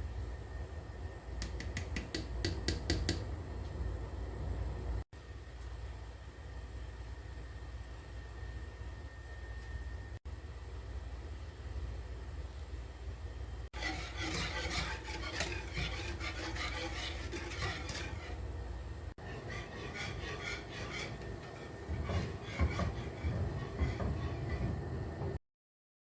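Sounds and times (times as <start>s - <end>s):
steady low hum: 0.0s - 25.4s
utensil scraping against dishware: 13.8s - 18.4s, 19.2s - 25.0s.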